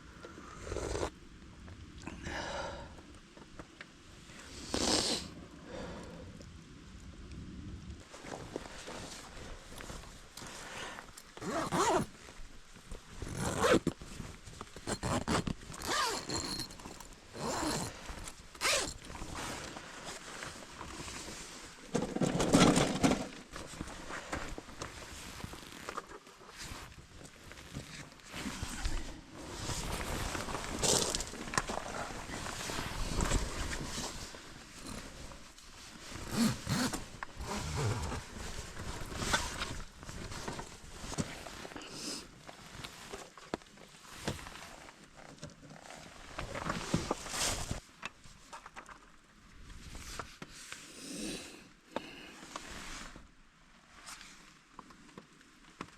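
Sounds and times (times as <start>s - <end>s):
zipper being pulled: 0.5s - 1.1s, 11.4s - 12.1s, 13.2s - 14.0s, 14.8s - 19.6s, 25.3s - 26.0s, 27.6s - 35.3s, 36.0s - 40.4s
rustling camping gear: 7.9s - 55.9s.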